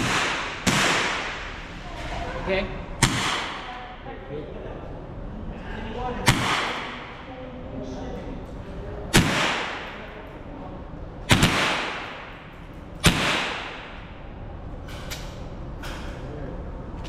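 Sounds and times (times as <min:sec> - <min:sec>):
gunshots with echo: 0:00.0 - 0:01.7, 0:03.0 - 0:04.0, 0:06.2 - 0:07.3, 0:09.1 - 0:10.2, 0:11.3 - 0:14.3.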